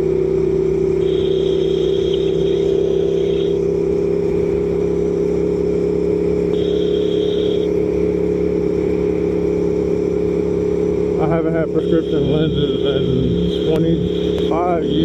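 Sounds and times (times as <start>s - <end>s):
motorcycle engine cruising: 0.0s - 15.0s
brief high tone: 1.0s - 3.5s, 6.5s - 7.7s, 11.7s - 15.0s.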